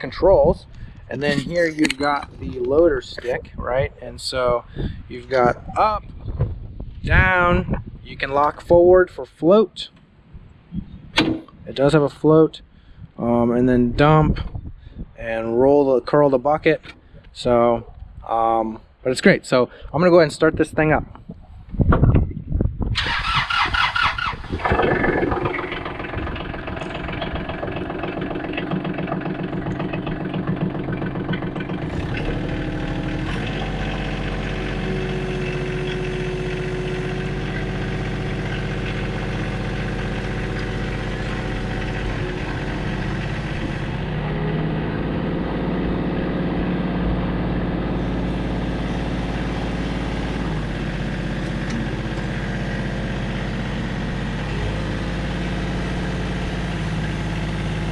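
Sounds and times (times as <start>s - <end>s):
starter cranking engine: 23.0s - 45.4s
tractor diesel engine running: 23.0s - 57.9s.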